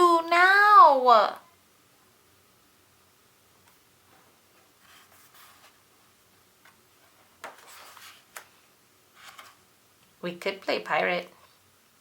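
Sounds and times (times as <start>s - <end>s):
book pages rustling: 4.2s - 5.8s, 6.6s - 8.6s, 9.2s - 9.6s
page turning: 6.6s - 8.5s, 9.2s - 9.6s.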